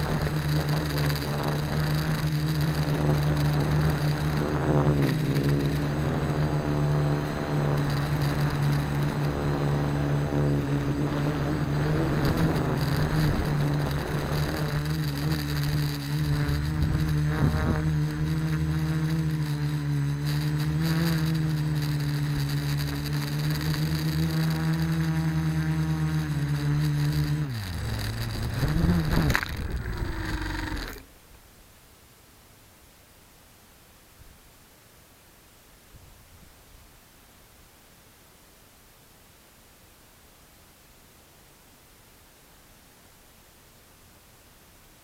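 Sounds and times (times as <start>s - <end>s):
quadcopter motors humming: 0.0s - 31.1s.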